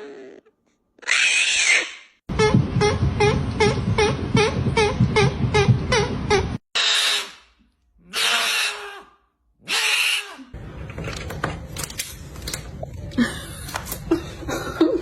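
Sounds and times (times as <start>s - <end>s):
parrot squawking: 1.0s - 7.4s, 8.1s - 10.5s.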